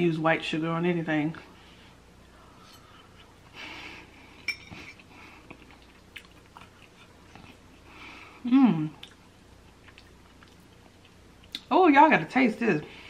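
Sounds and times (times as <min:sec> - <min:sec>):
metal fork clinking on plate: 0:04.4 - 0:04.8
close chewing: 0:04.9 - 0:07.9, 0:09.0 - 0:11.7.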